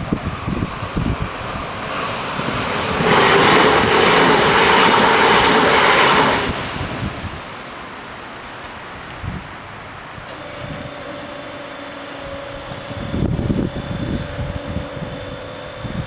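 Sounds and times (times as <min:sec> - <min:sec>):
train wheels rushing on rails: 0:00.0 - 0:09.4.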